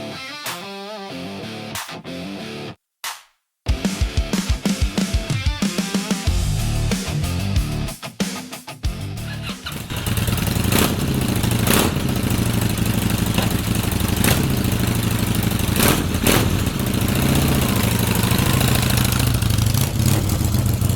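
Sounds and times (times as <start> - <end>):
exhaust cracks: 9.3 - 20.9
motorcycle engine idling: 9.3 - 20.9.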